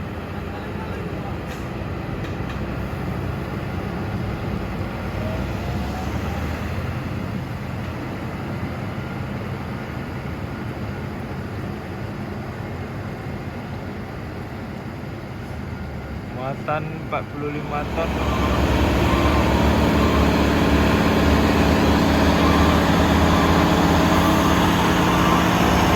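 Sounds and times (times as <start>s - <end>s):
diesel truck engine running: 0.0s - 10.8s, 16.1s - 25.9s.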